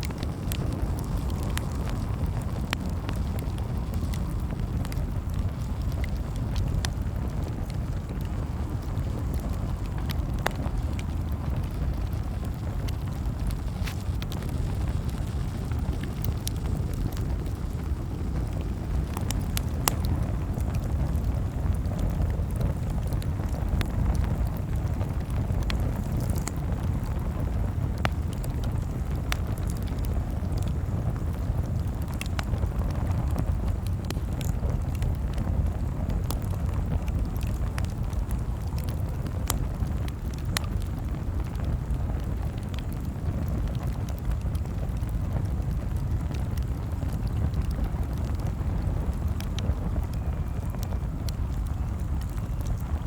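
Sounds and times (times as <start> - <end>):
steady low rumble: 0.0 - 42.0
campfire crackling and popping: 0.0 - 53.0.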